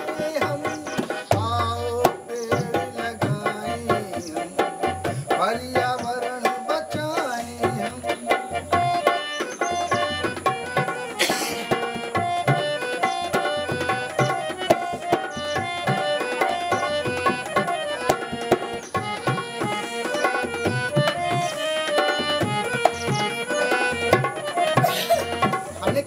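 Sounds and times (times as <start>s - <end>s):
hand drum rhythm: 0.0s - 26.0s
harmonium melody: 0.0s - 26.0s.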